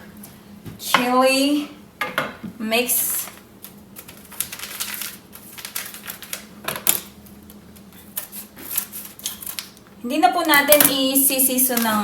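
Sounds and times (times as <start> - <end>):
paper packet crinkling and rattling: 3.6 - 7.2, 8.2 - 9.8.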